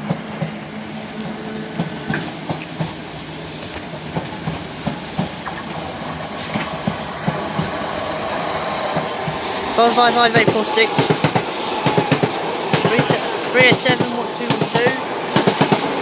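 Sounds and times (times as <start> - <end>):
approaching train rushing: 0.0 - 16.0
train wheels clicking over rail joints: 1.2 - 16.0.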